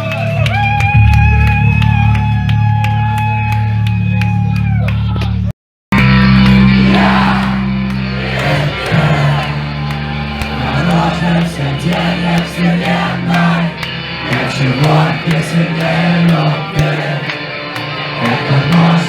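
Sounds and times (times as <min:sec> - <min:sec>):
crowd shouting and singing: 0:06.0 - 0:19.0
heavy rock band playing: 0:06.0 - 0:19.0.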